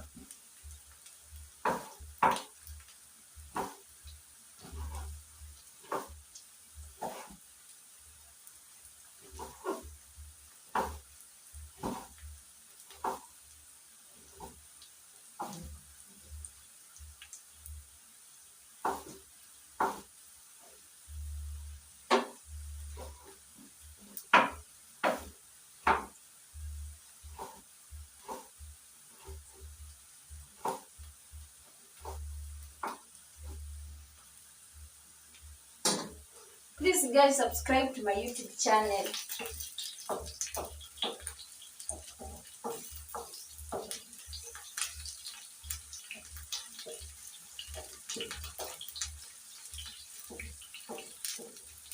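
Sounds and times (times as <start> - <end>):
faint hiss from pan: 0.0 - 51.9
spoon scraping a pan: 4.6 - 5.2, 7.0 - 7.4, 9.3 - 9.9, 39.0 - 51.9.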